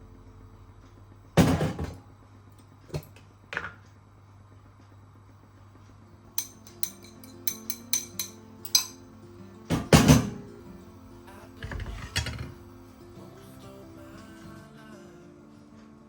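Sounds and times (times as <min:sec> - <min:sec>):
dishes and utensils clinking: 0:06.4 - 0:09.0, 0:11.6 - 0:12.6.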